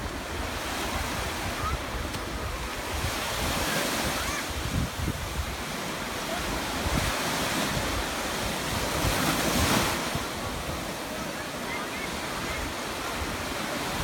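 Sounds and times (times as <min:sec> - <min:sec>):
wind buffeting microphone: 0:00.0 - 0:11.2
sea surf breaking: 0:00.0 - 0:14.0.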